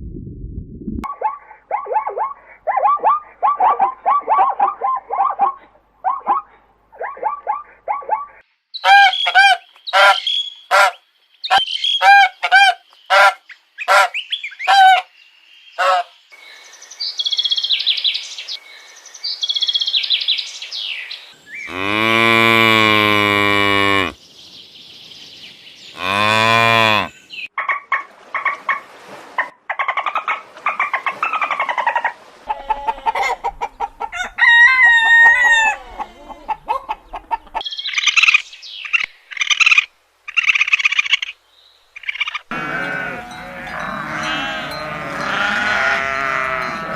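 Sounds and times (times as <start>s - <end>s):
fowl and bird calls: 1.1s - 15.1s, 15.7s - 16.7s, 29.4s - 41.4s
farm animal calls: 15.8s - 16.1s, 21.7s - 24.2s, 26.0s - 28.8s, 29.8s - 41.3s, 42.0s - 46.9s
cow mooing: 21.7s - 24.2s, 26.0s - 27.1s, 42.5s - 46.9s.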